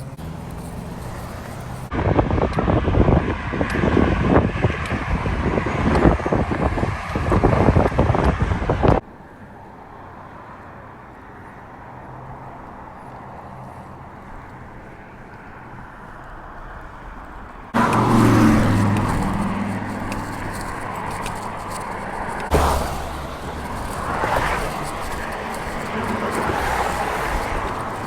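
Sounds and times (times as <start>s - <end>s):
cars passing on highway: 0.0s - 28.0s
vehicle passing close by: 0.0s - 28.0s.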